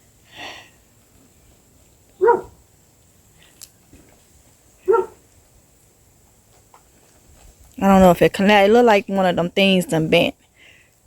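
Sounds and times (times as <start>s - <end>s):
dog barking: 2.2s - 2.6s, 4.9s - 5.2s.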